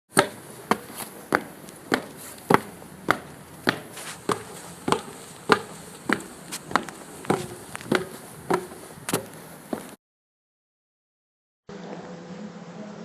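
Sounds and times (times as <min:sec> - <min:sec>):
footsteps on wooden stairs: 0:00.1 - 0:10.0.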